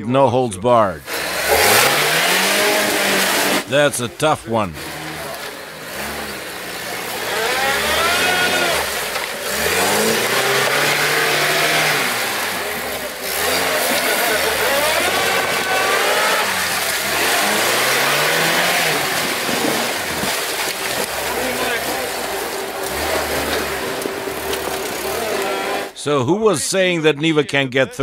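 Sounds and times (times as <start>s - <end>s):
car engine revving: 1.0s - 26.0s
churning mud hiss: 4.8s - 25.9s.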